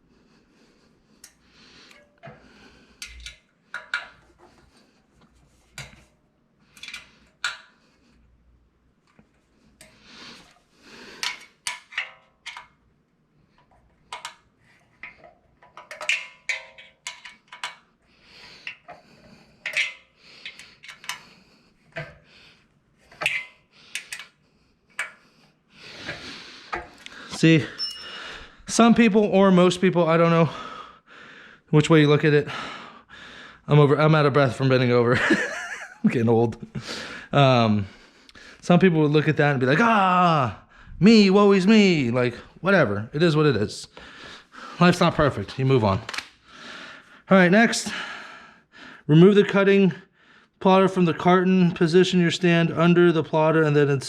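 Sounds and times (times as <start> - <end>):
metal parts clinking and rattling: 15.0 - 17.9, 19.6 - 21.2.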